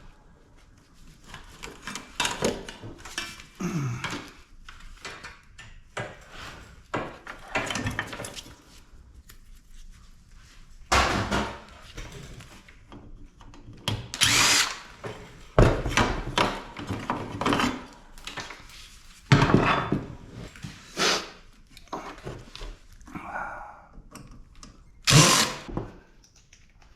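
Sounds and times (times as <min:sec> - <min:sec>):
power drill bursts: 0:14.2 - 0:14.9, 0:25.1 - 0:25.7.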